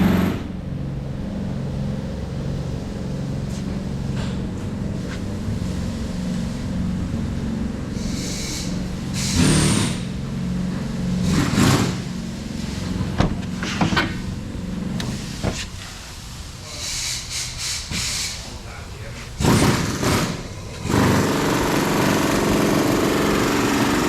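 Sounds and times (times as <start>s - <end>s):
short bursts of hiss: 8.0s - 9.9s, 15.1s - 18.5s.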